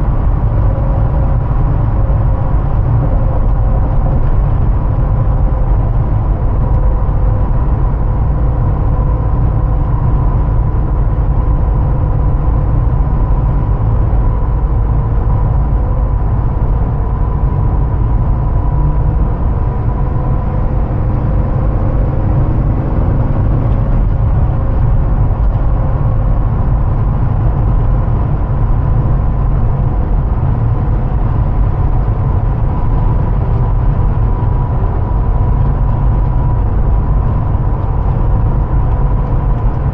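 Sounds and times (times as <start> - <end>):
vehicle engine rumble: 0.0 - 39.9.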